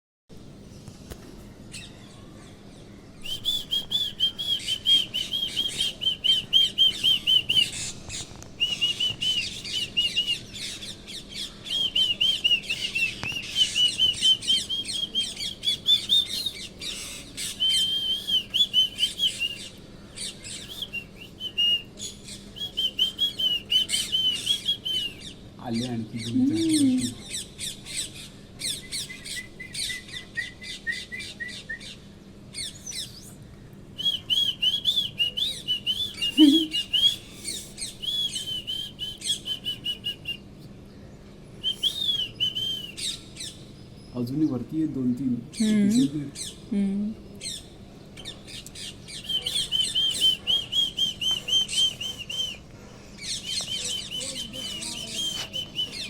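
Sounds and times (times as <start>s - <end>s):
parrots calling: 47.4s - 56.0s.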